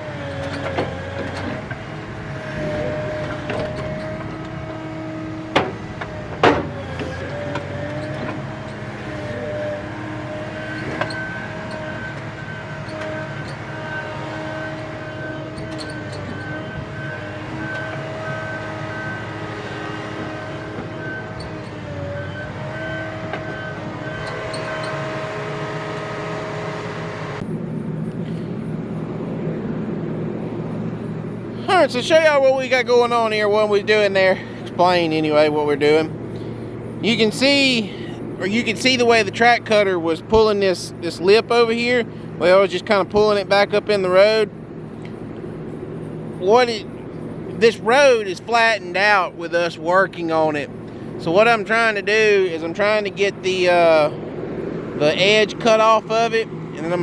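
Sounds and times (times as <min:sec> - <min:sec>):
heavy machine engine drone: 0:00.0 - 0:57.0.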